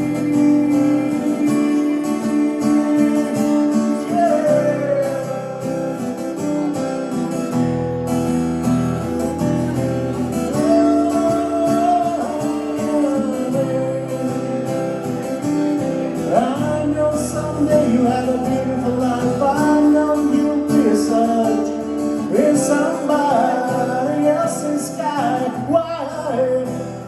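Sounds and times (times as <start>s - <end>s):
person singing: 0.0s - 6.7s, 8.9s - 27.0s
acoustic guitars strumming: 0.0s - 27.0s.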